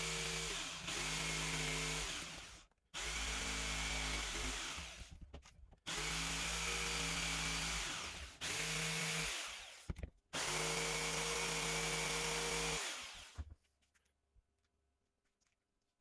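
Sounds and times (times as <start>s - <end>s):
electric drill motor running: 0.0s - 5.1s, 5.9s - 13.4s.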